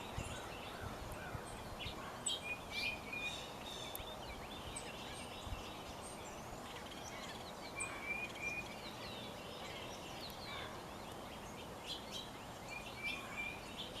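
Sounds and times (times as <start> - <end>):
birds chirping and whistling: 0.0 - 14.0
outdoor background noise: 0.0 - 14.0.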